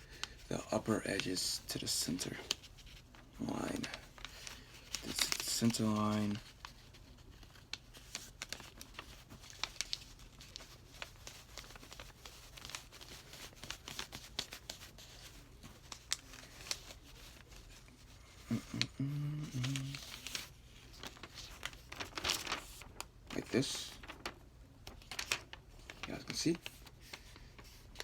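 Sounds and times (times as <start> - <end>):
low hum of a voice: 0.5 - 2.5, 3.3 - 4.1, 5.0 - 6.5, 17.3 - 20.2, 23.3 - 24.1
paper being folded and creased: 1.1 - 28.0.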